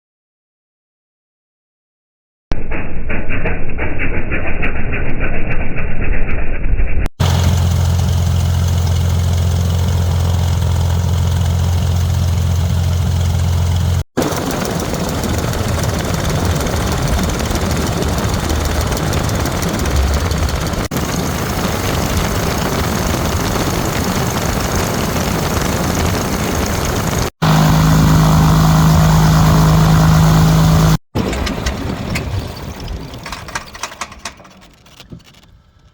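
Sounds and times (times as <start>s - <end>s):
propeller plane engine running: 7.2s - 35.8s.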